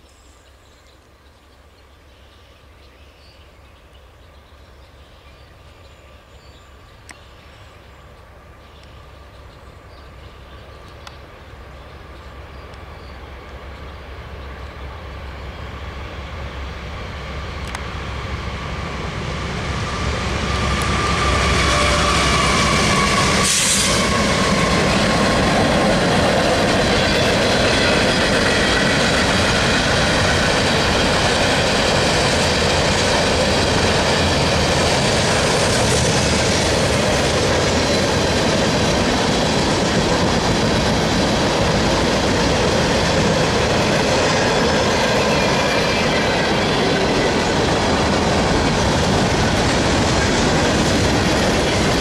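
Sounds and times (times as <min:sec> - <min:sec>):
diesel locomotives approaching: 0:00.0 - 0:52.0
freight cars rumbling past: 0:12.0 - 0:52.0.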